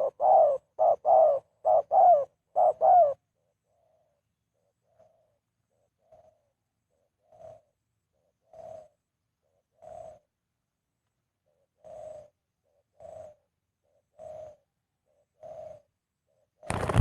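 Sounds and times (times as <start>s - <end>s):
dove cooing: 0.0s - 10.4s, 11.4s - 17.0s.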